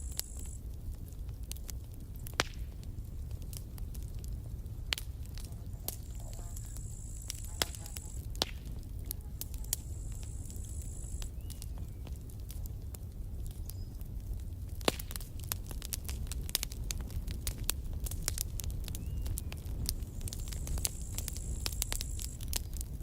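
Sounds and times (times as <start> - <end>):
high-pitched hiss: 0.0 - 0.6, 5.5 - 8.3, 9.2 - 11.3
campfire crackling: 0.0 - 23.0
low rumble of flames: 0.0 - 23.0.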